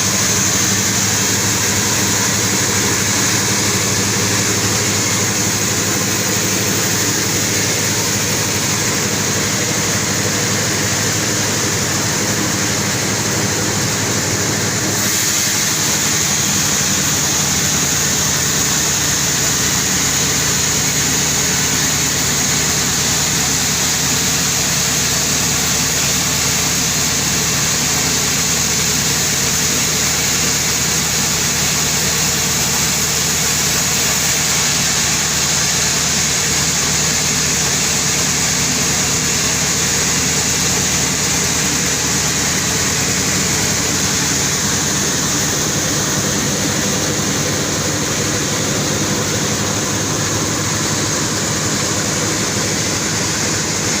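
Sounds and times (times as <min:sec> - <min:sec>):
machinery engine drone: 0:00.0 - 0:54.0
high hiss: 0:11.4 - 0:24.8.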